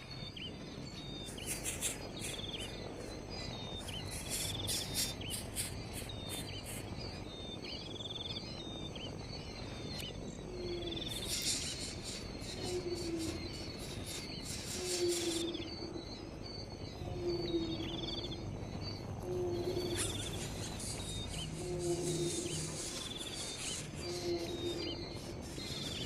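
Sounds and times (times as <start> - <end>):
bird trilled calls and chirps: 0.0 - 26.0
low background rumble: 0.0 - 26.0
high insect rasping: 1.1 - 7.0, 11.0 - 15.6, 19.8 - 26.0.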